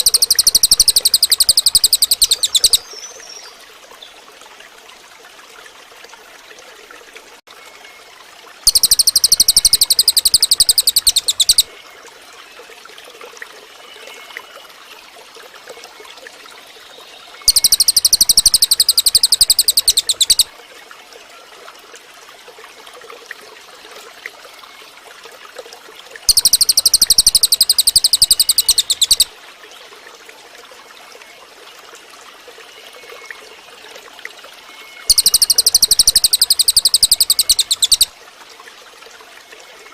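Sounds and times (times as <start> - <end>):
soft chirps: 0.0 - 2.9, 8.7 - 11.7, 17.4 - 20.5, 26.3 - 29.3, 35.1 - 38.1
bird song bursts: 0.0 - 3.5, 8.7 - 11.7, 17.4 - 20.5, 26.3 - 29.3, 35.0 - 38.1.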